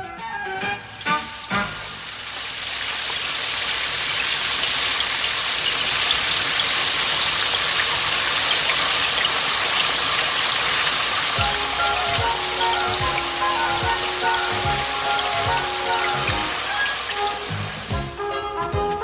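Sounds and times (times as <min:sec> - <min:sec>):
cartoon rain downpour: 0:00.0 - 0:19.0.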